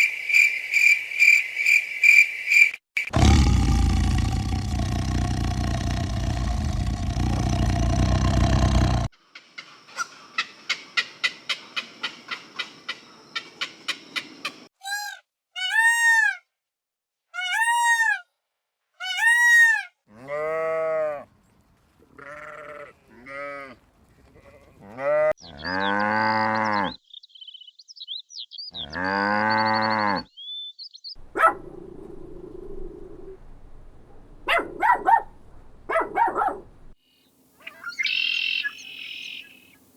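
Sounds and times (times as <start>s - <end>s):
livestock bleating: 20.1s - 21.2s, 22.1s - 23.8s
faint bird chirps: 29.6s - 31.2s, 37.0s - 39.8s.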